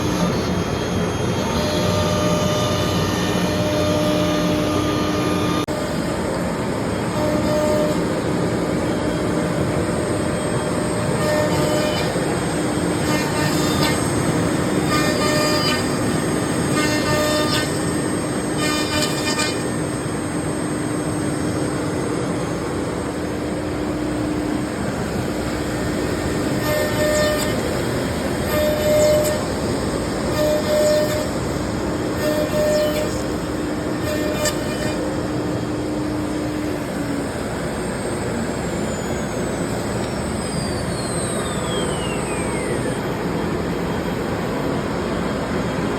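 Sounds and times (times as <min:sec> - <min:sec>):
machine noise: 0:00.0 - 0:45.9
router spindle whine: 0:00.0 - 0:45.9
high-pitched cutting noise: 0:07.0 - 0:37.8.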